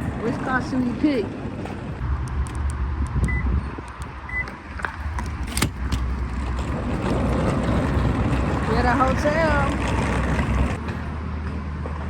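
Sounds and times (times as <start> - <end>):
car engine rumbling: 0.0 - 11.7
short electronic beeps: 3.3 - 3.6, 4.3 - 4.5.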